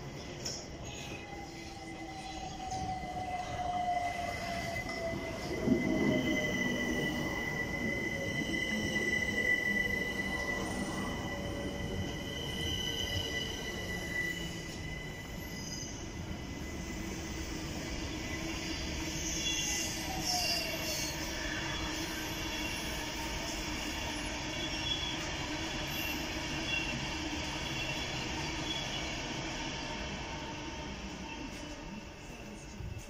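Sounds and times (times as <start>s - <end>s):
electric train hum and rumble: 0.0s - 33.0s
train brake squeal: 0.8s - 16.2s, 19.0s - 29.2s.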